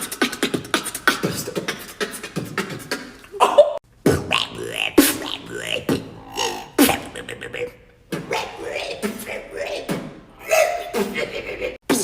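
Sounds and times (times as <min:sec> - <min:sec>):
person beatboxing: 0:00.0 - 0:12.0.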